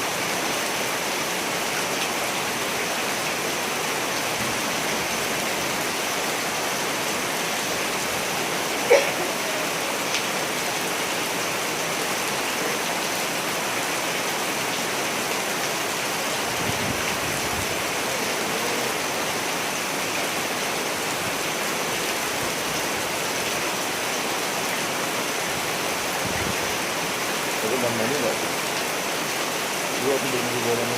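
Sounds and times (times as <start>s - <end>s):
steady rain: 0.0s - 30.9s.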